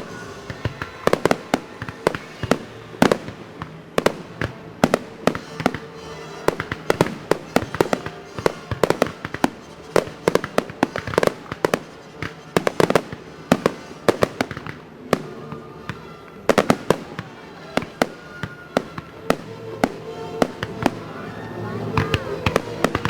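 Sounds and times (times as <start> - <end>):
fireworks bursting: 0.0 - 23.0
music playing: 0.0 - 23.0.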